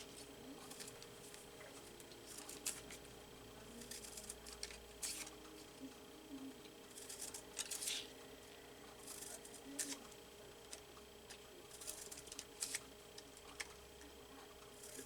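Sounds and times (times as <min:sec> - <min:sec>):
scissors snipping paper: 0:00.0 - 0:03.0, 0:03.6 - 0:05.8, 0:06.9 - 0:08.2, 0:08.9 - 0:10.1, 0:10.7 - 0:13.8, 0:14.7 - 0:15.0
paper rustling: 0:00.0 - 0:03.1, 0:03.7 - 0:05.7, 0:06.9 - 0:08.1, 0:10.7 - 0:13.7.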